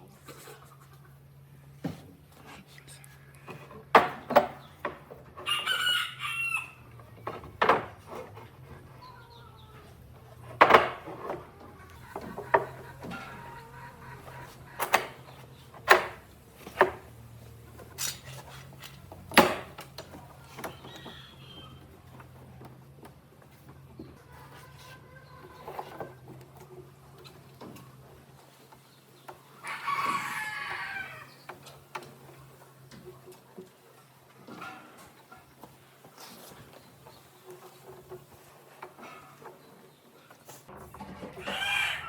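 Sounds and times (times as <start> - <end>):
rooster crowing: 5.4 - 6.9, 29.6 - 31.4, 41.4 - 42.0
sharp irregular knocks: 10.5 - 11.4, 14.8 - 17.1, 19.1 - 20.2.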